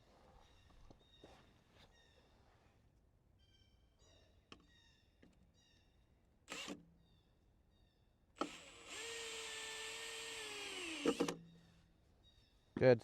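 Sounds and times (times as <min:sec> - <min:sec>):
cordless drill whining: 0:08.4 - 0:11.4
faint bird chirps: 0:11.4 - 0:12.8.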